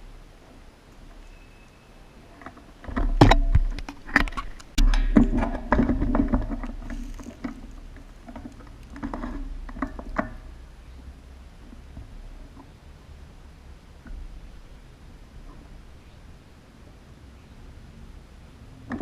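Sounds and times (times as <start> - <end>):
rustling: 0.3 - 10.6.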